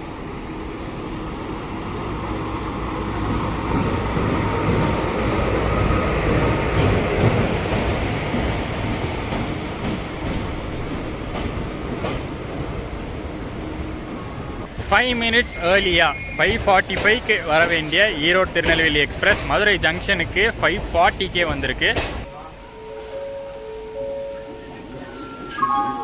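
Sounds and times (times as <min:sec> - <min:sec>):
wheels squealing: 0:12.1 - 0:21.2
train wheels clacking over rail joints: 0:16.4 - 0:22.3.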